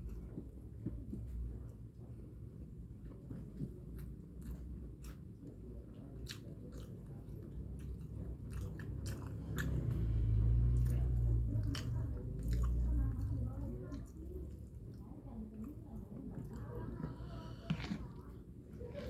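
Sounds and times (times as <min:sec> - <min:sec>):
chewing and biting: 0:03.0 - 0:19.0
low rumble: 0:09.0 - 0:13.8.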